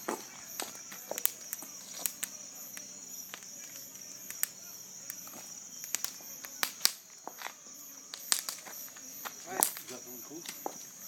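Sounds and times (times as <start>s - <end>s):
bonfire crackling and popping: 0.0s - 11.0s
night insects chirring: 0.0s - 11.0s.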